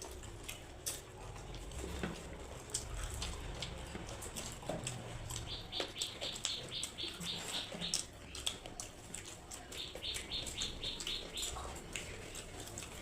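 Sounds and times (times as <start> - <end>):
chewing and crunching food: 0.0 - 13.0.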